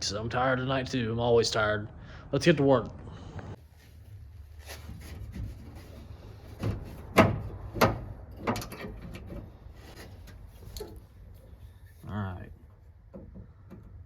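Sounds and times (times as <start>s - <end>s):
knocks and clunks on truck door: 6.5s - 9.5s.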